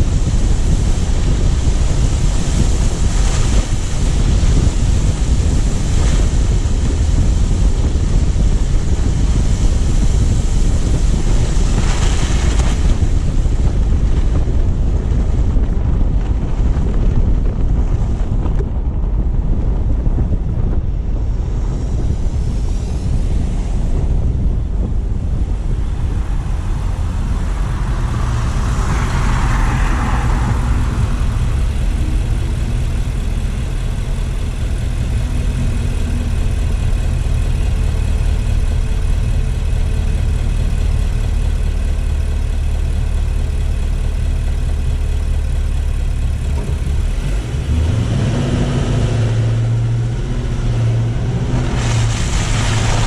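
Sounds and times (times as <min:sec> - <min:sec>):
road and tyre rumble: 0:00.0 - 0:53.0
wind buffeting microphone: 0:00.0 - 0:53.0.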